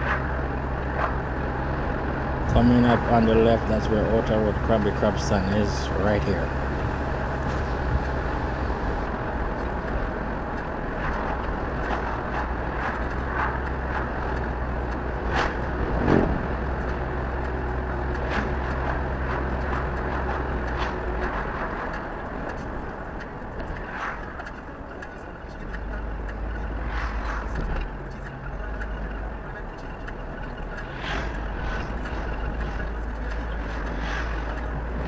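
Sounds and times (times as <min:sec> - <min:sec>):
car road noise rumble: 0:02.4 - 0:09.1.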